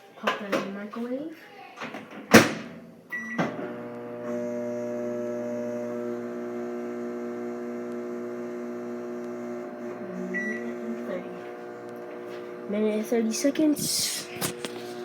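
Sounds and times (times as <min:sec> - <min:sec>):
microwave running hum: 0:03.1 - 0:15.0.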